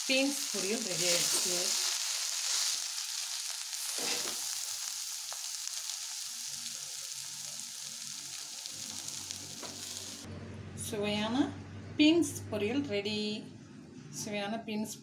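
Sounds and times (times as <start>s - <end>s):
vegetables sizzling in oil: 0.0s - 10.3s.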